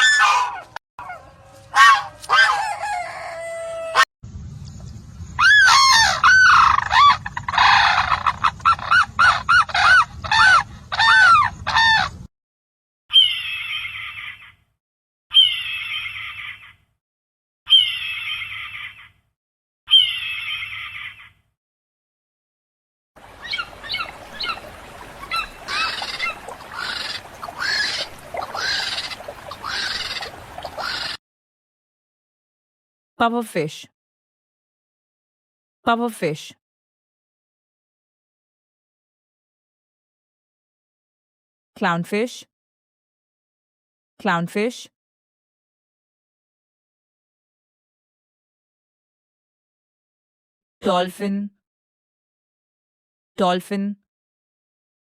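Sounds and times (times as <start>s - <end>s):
bird calling: 23.2s - 31.2s.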